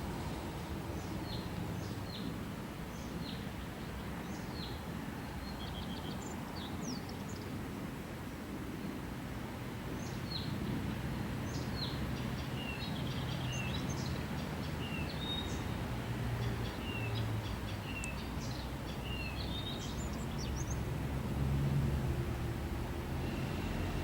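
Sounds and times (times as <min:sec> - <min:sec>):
small songbirds chirping: 0:00.9 - 0:07.6, 0:09.9 - 0:21.1
low steady rumble: 0:17.3 - 0:24.0.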